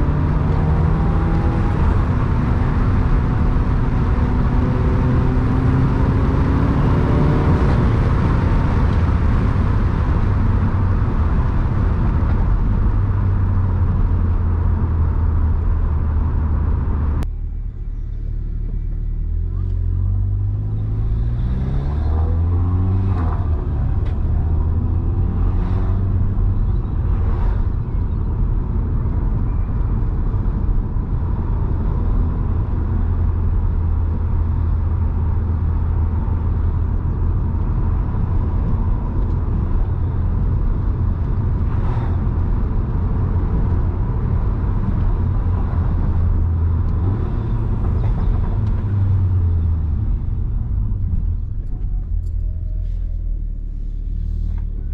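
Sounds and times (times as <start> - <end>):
car engine revving: 0.0 - 29.3.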